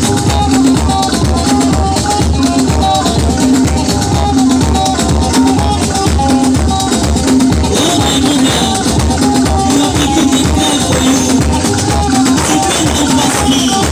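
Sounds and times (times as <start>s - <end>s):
latin dance music: 0.0s - 13.9s.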